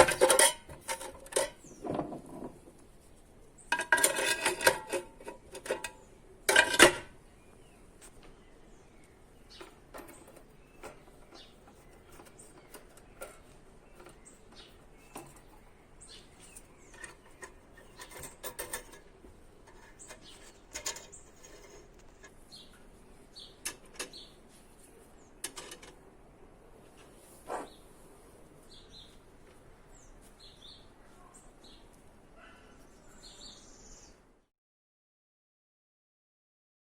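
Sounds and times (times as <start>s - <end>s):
bird chirps: 29.9s - 34.2s.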